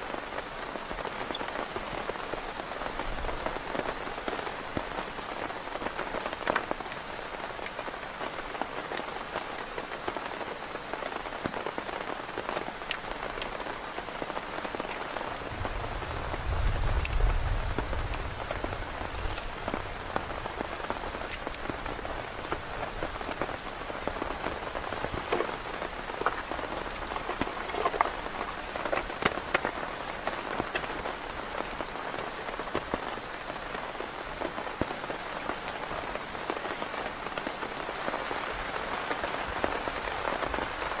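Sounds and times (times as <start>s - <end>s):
heavy rain: 0.0s - 41.0s
raindrop hits: 1.2s - 33.8s.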